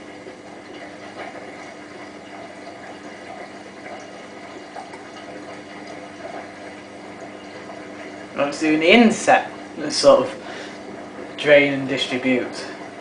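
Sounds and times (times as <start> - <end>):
drain pump humming: 0.0 - 13.0.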